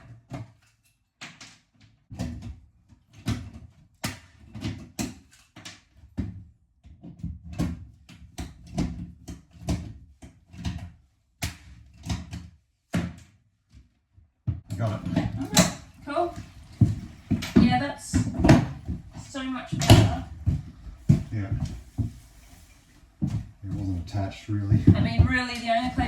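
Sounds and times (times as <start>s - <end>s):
flooring planks knocking into place: 14.8s - 22.4s.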